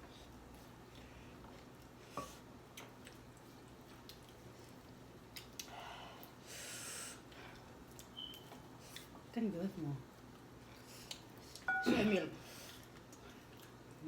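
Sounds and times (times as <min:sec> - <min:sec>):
person chewing chicken wings: 0:02.7 - 0:06.4, 0:12.6 - 0:14.0
breathy hiss: 0:05.7 - 0:07.2.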